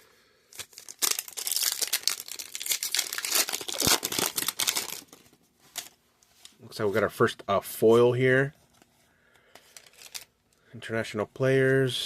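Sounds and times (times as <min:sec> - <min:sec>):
foil wrapper crinkling and tearing: 0:00.5 - 0:05.9, 0:09.8 - 0:10.3.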